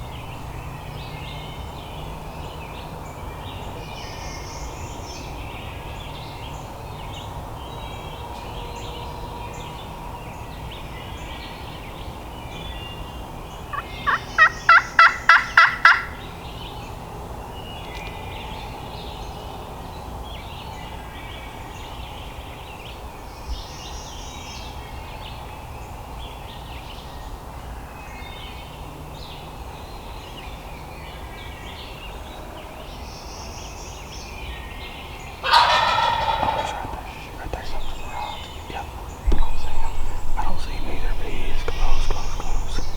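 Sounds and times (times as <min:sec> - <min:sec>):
songbirds chirping: 0:00.0 - 0:42.9
turkey call yelps: 0:13.7 - 0:16.2, 0:35.4 - 0:37.2.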